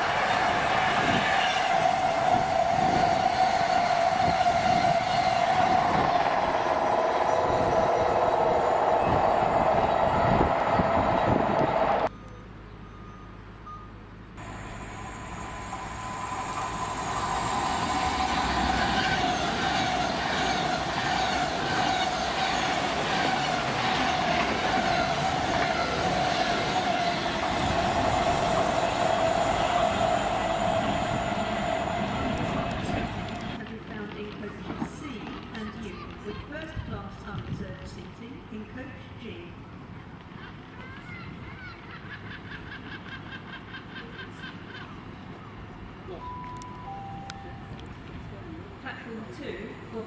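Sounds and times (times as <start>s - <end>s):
freight train rolling past: 0.0s - 12.1s, 14.4s - 38.8s
electric train passing: 0.0s - 12.4s, 14.4s - 37.4s, 42.0s - 50.0s
train wheels squealing: 0.0s - 33.6s.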